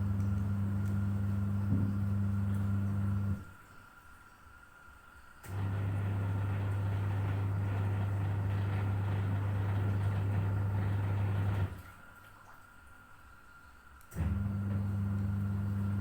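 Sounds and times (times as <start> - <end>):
household appliance humming: 0.0 - 3.5, 5.4 - 11.8, 14.1 - 16.0.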